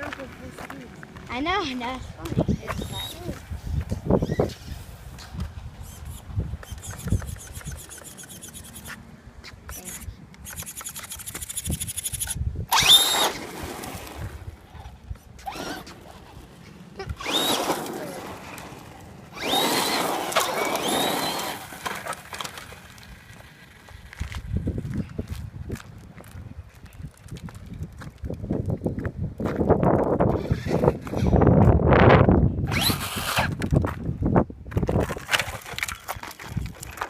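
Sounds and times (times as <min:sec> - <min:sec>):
tyres on gravel: 0:00.0 - 0:31.7, 0:32.7 - 0:37.0
electric motor whining: 0:09.7 - 0:13.4, 0:15.4 - 0:16.4, 0:17.0 - 0:22.6, 0:32.7 - 0:33.7.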